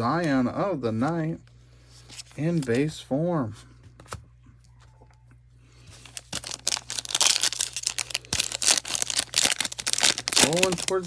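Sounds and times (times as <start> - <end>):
foil wrapper tearing and crinkling: 6.0 - 11.0.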